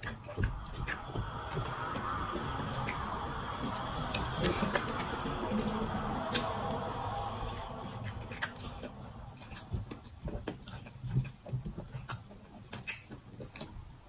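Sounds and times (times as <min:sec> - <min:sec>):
chewing with wet mouth clicks: 0:07.8 - 0:13.8.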